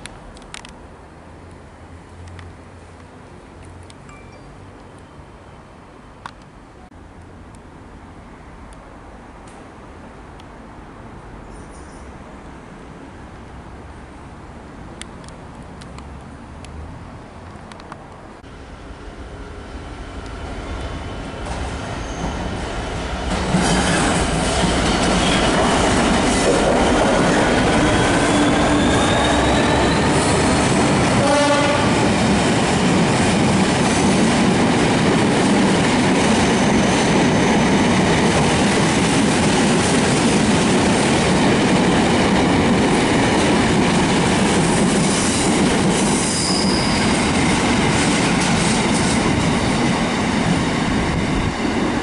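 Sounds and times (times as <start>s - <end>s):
diesel locomotive engine: 0.1s - 52.0s
wheels squealing on track: 27.8s - 30.6s, 46.2s - 47.2s.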